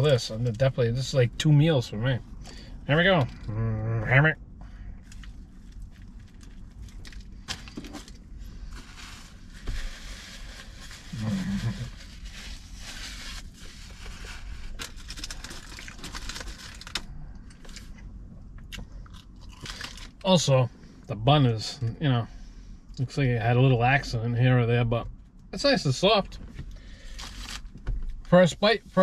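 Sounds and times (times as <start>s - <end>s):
short low hum: 0.1s - 14.9s
wet crackly chewing: 15.2s - 20.2s.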